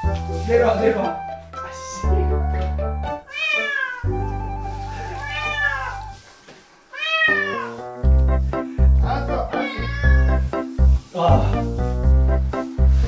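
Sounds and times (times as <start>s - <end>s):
background music: 0.0s - 6.2s, 7.2s - 13.0s
kitten meowing: 3.3s - 4.1s, 5.1s - 6.0s, 6.9s - 7.8s, 9.5s - 10.4s.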